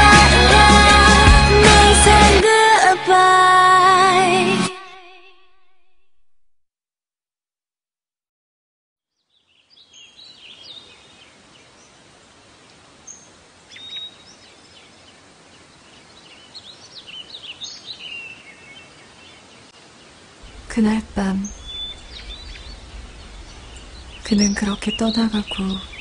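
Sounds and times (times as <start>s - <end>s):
small birds chirping: 9.2s - 12.0s, 12.6s - 26.0s
steady background hiss: 9.5s - 26.0s.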